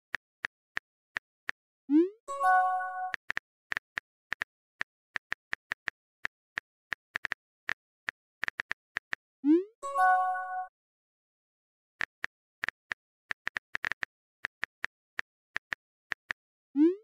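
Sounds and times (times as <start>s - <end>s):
message chime: 9.8s - 10.7s.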